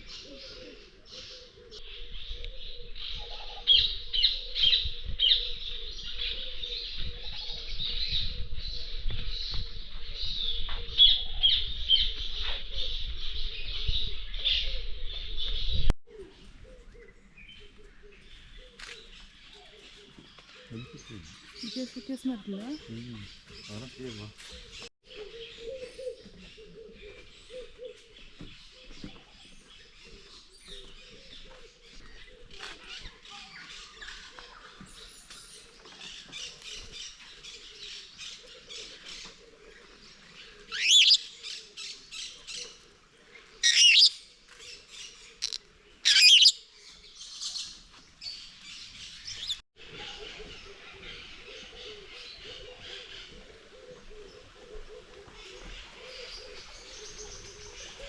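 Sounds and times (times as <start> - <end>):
birds chirping and calling: 0.0 - 58.0
loud sweeping bird calls: 36.4 - 42.8, 43.4 - 58.0.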